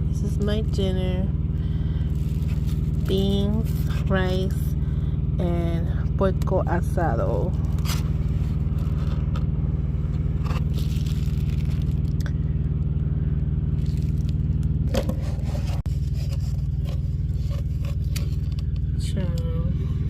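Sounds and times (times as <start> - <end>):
engine idling hum: 0.0 - 20.0
utensil scraping in container: 14.9 - 18.6.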